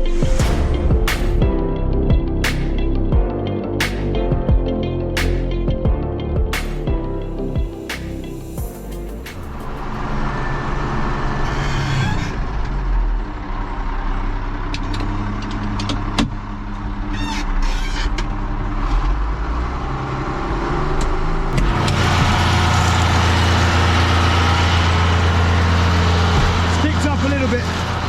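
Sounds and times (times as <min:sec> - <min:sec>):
tractor diesel engine running: 0:21.2 - 0:28.0.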